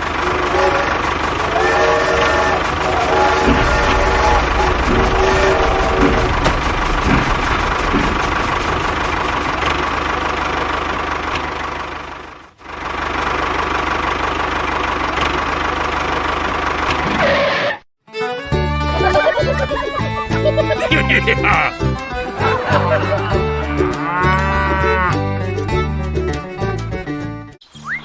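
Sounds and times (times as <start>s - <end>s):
motor running with rattle: 0.0s - 17.5s.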